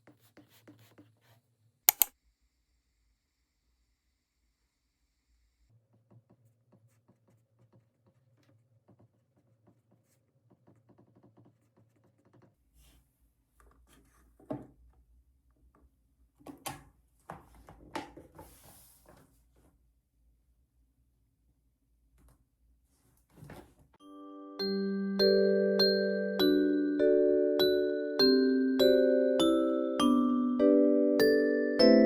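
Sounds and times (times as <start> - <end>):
hands clicking and tapping at desk: 1.9 - 2.1
knocks and rustles: 23.3 - 24.0.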